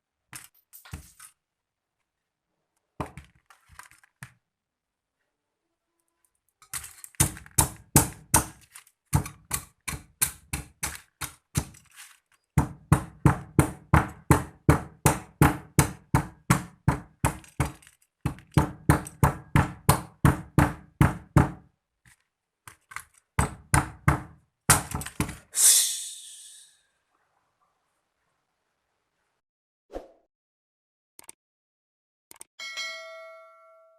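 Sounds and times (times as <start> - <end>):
brief hissing rush: 25.6 - 26.8
computer mouse clicking: 32.3 - 32.5.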